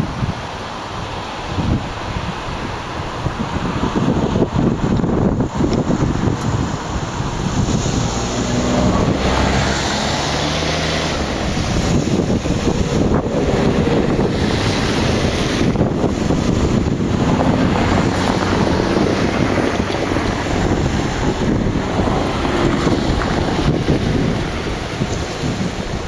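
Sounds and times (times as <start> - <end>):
freight train passing: 6.6 - 26.0.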